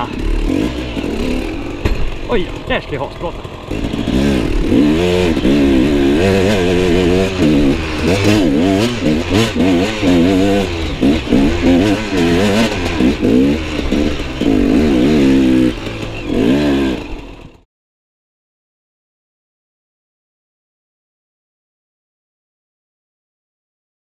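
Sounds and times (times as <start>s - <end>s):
dirt bike engine revving: 0.0s - 17.6s.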